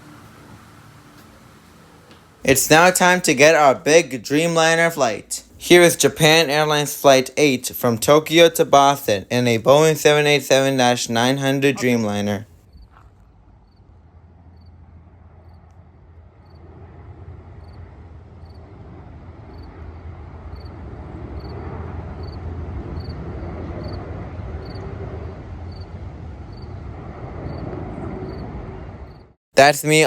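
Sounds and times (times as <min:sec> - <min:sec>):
jet engine rumble: 0:00.0 - 0:29.4
crickets chirping: 0:12.7 - 0:15.8, 0:16.4 - 0:16.8, 0:17.5 - 0:18.7, 0:19.5 - 0:19.8, 0:20.5 - 0:20.8, 0:21.4 - 0:23.2, 0:24.6 - 0:24.8, 0:25.7 - 0:26.8, 0:27.5 - 0:29.3.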